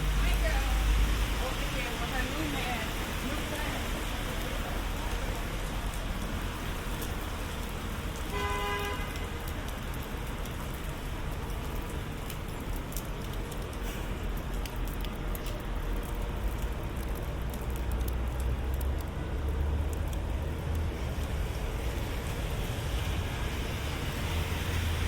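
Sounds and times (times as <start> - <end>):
rain on pavement: 0.0 - 25.0
traffic rumble: 0.0 - 25.0
car horn toot: 8.3 - 9.1.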